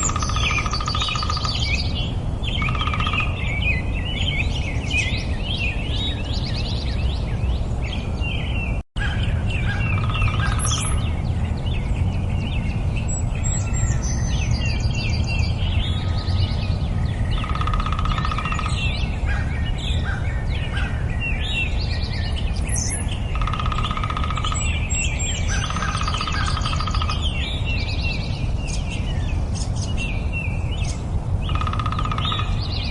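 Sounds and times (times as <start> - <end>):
low pulsed bird trill: 0.0 - 7.2, 8.4 - 11.8, 17.2 - 21.0, 21.6 - 29.3, 31.4 - 32.9
songbirds singing: 0.0 - 32.9.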